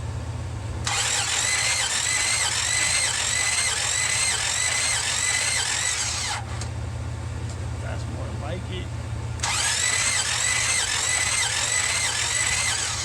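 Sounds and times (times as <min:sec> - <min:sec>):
starter motor cranking: 0:00.8 - 0:06.7, 0:09.4 - 0:13.0.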